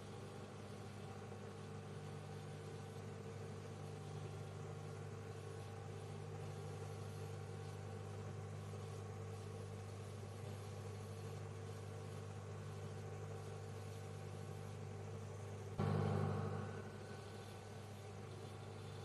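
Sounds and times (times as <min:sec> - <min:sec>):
microwave oven humming: 0:00.0 - 0:19.0.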